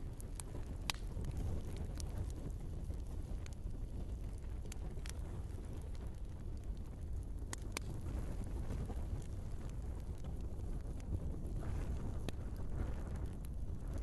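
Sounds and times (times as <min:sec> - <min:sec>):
logs crackling and popping: 0:00.0 - 0:14.0
low rumble of flames: 0:00.0 - 0:14.0.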